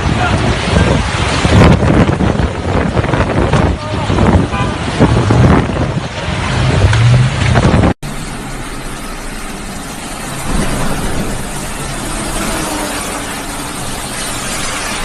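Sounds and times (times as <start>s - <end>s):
wind gusting against microphone: 0.0s - 8.0s
low rumble of street traffic: 3.7s - 15.0s.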